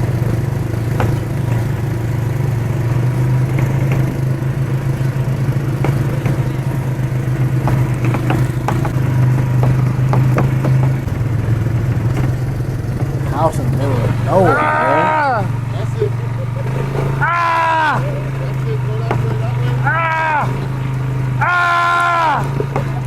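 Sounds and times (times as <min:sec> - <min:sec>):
short knocks and rattles: 0:00.0 - 0:14.5
atv engine running: 0:00.0 - 0:23.0.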